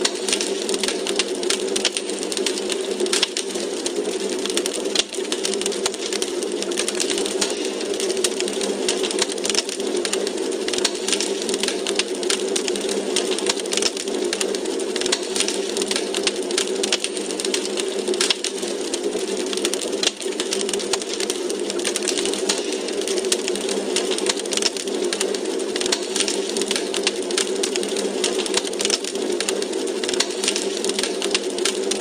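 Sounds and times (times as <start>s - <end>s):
low rush of flame: 0.0s - 32.0s
wood fire crackling in fireplace: 0.0s - 32.0s.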